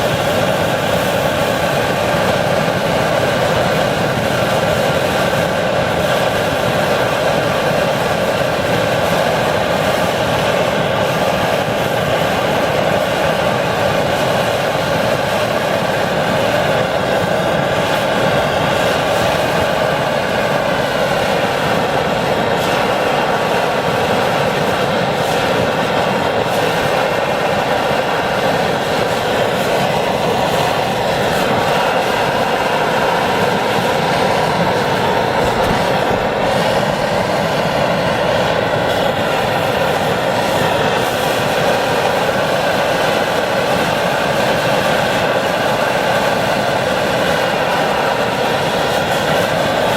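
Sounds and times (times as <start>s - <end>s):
stove burner rushing: 17.7s - 43.8s.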